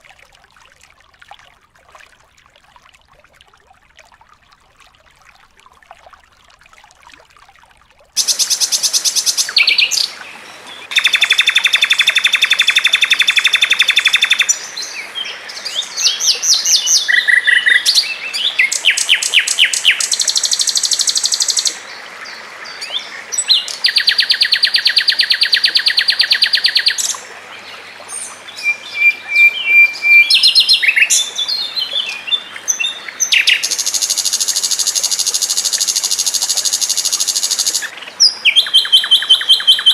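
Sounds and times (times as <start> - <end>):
songbird trills and chirps: 8.2 - 10.2, 10.9 - 21.8, 22.8 - 27.2, 28.5 - 39.9.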